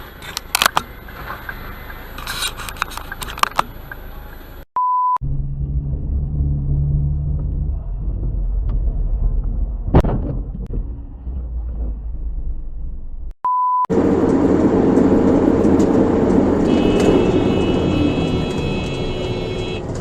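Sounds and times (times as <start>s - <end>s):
car engine and road rumble: 0.0s - 20.0s
short beep tone: 4.8s - 5.2s, 13.4s - 13.9s.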